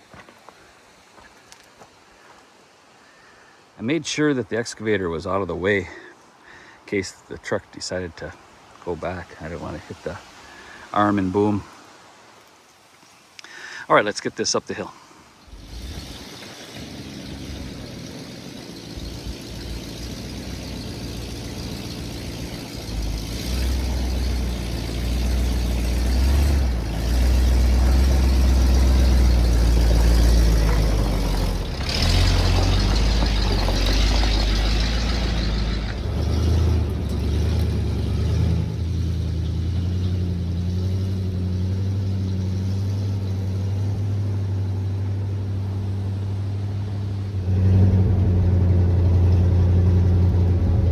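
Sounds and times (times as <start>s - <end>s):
truck engine pulling uphill: 15.2s - 50.9s.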